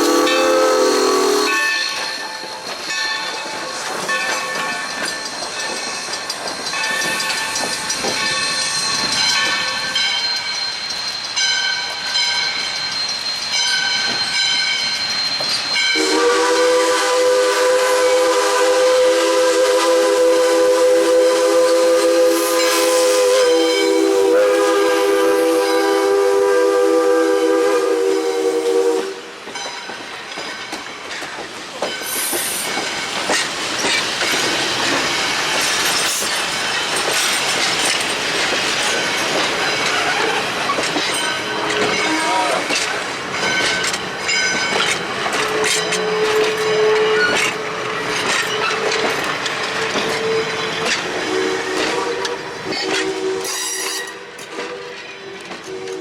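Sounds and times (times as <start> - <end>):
high steady squeal: 0.0 - 2.0
steam locomotive chime whistle: 0.0 - 3.2, 6.9 - 30.0, 39.6 - 47.8, 48.5 - 56.0
train rumble and clatter: 1.4 - 56.0.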